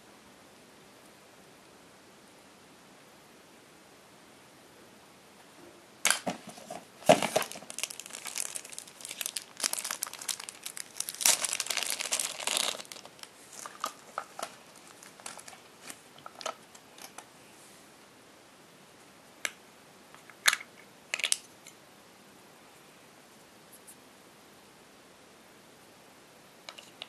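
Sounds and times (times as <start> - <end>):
packaging crinkling: 6.1 - 17.2.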